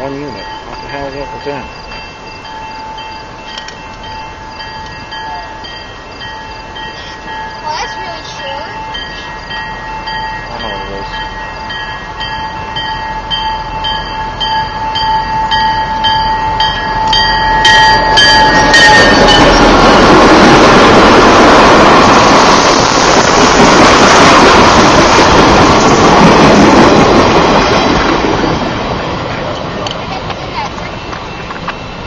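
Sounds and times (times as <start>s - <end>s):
train rumbling past on rails: 0.0s - 32.0s.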